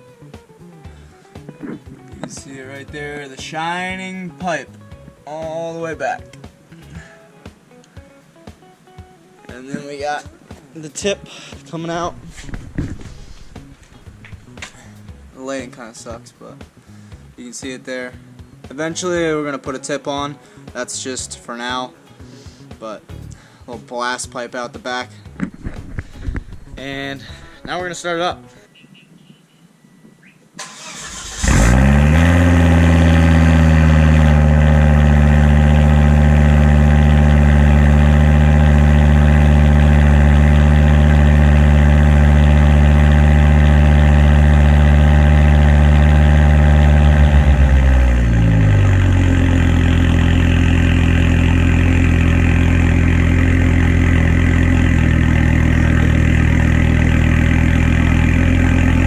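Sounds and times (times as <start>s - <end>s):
car engine starting and idling: 30.6s - 59.0s.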